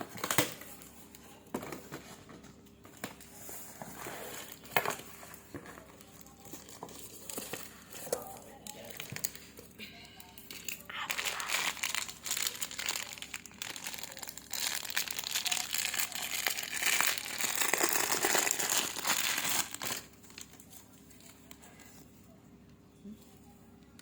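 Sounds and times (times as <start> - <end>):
packaging crinkling: 10.4 - 21.6
packaging tearing: 10.7 - 20.6.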